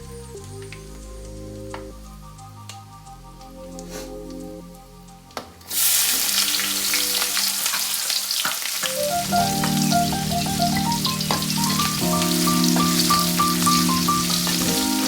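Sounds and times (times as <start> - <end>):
soft background music: 0.0 - 15.0
food sizzling in hot oil: 5.7 - 15.0.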